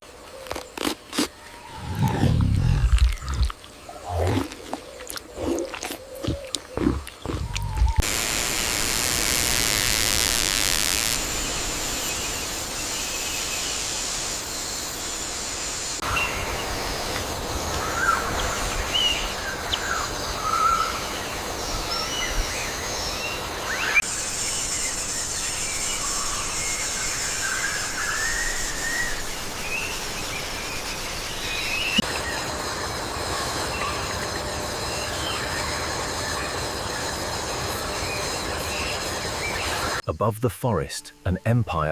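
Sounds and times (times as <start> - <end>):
shrill insect drone: 5.4 - 18.2, 23.7 - 40.0.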